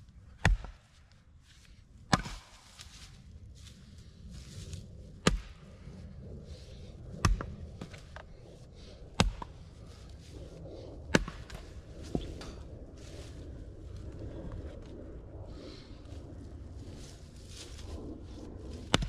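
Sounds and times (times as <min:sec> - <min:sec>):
axe chopping wood: 0:00.4 - 0:00.8, 0:02.1 - 0:02.6, 0:05.2 - 0:05.6, 0:07.2 - 0:07.9, 0:11.1 - 0:12.3.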